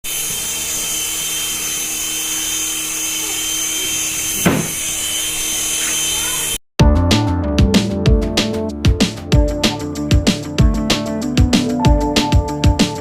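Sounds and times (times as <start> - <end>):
small electric motor whirring: 0.0 - 6.6.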